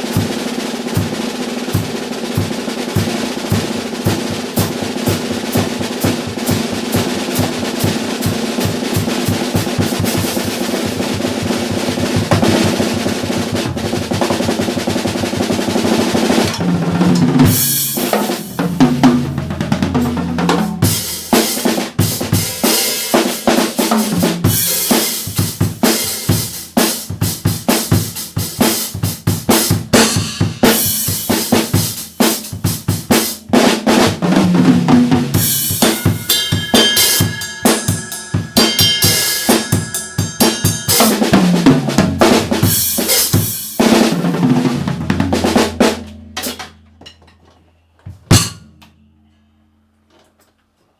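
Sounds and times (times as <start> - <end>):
drum kit solo: 0.0 - 47.2, 48.1 - 48.8
crash cymbal hits: 35.6 - 41.2.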